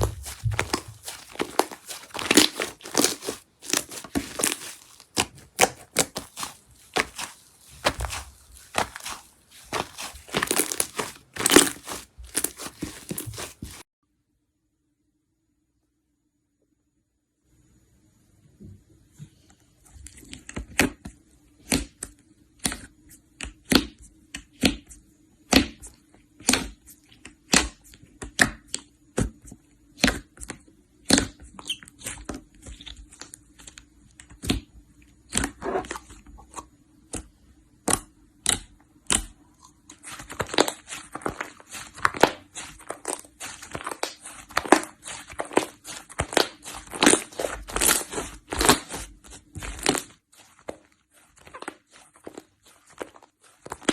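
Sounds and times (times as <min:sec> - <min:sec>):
slime popping and crackling: 0:00.0 - 0:13.8, 0:40.0 - 0:53.9.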